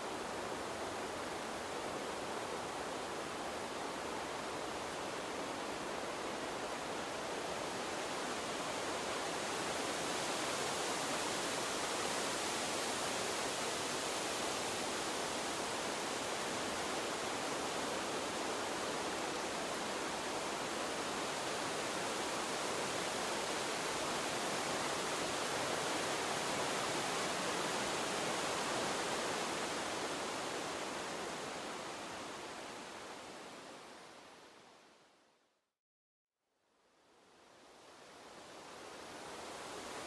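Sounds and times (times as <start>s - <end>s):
breeze through trees: 0.0s - 35.8s, 36.5s - 40.0s.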